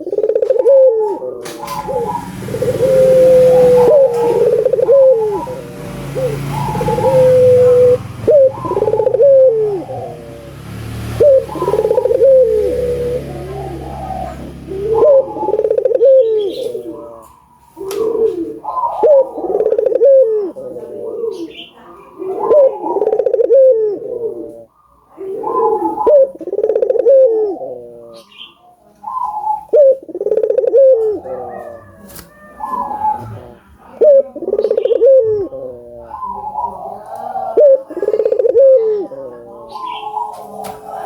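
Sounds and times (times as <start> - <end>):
dove cooing: 0.0 - 41.0.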